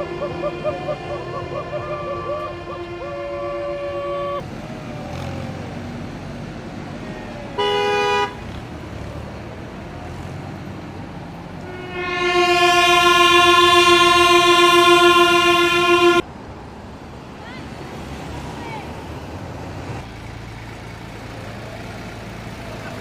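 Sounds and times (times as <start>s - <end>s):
vehicle horns: 0.0s - 4.4s, 7.5s - 8.8s, 11.6s - 16.2s
low engine rumble: 0.0s - 16.2s, 19.2s - 23.0s.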